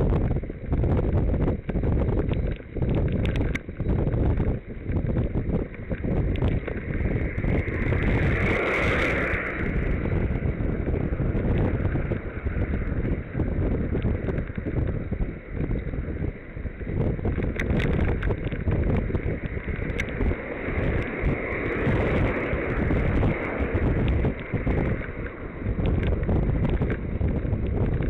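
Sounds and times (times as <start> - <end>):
wind buffeting microphone: 0.0 - 28.0
faint clicks: 1.6 - 4.5.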